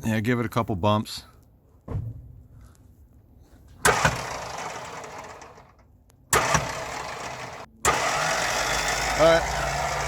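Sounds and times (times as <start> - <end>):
starter motor clunk and whir: 3.8 - 10.0.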